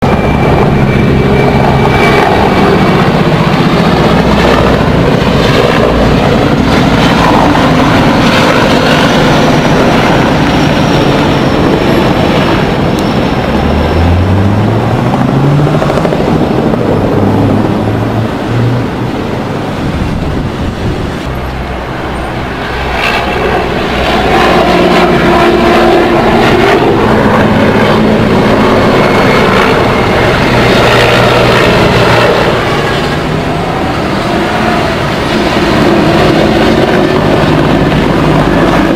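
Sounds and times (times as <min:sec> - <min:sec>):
helicopter rotor and turbine roar: 0:00.0 - 0:38.9
rising engine note: 0:12.7 - 0:19.3.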